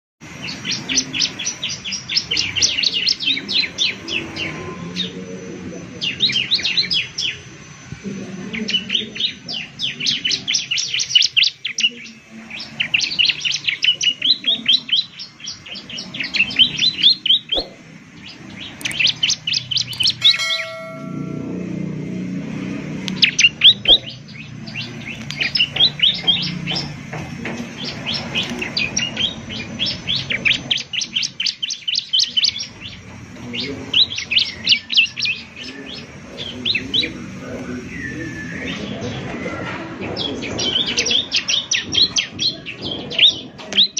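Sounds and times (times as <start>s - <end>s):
bird singing high chirps: 0.3s - 22.0s, 23.1s - 27.0s, 27.6s - 43.9s
whistled note: 20.2s - 21.7s.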